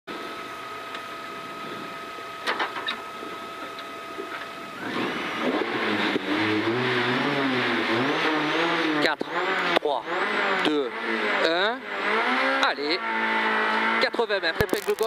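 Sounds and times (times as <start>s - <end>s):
car engine idling and revving: 0.1s - 15.0s
sharp clicks: 14.6s - 15.0s.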